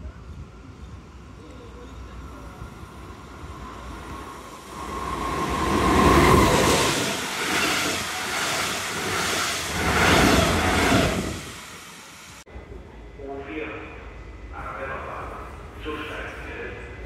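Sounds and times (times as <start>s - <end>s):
locomotive high whine: 0.1s - 13.1s
train coaches rushing past: 0.5s - 12.4s.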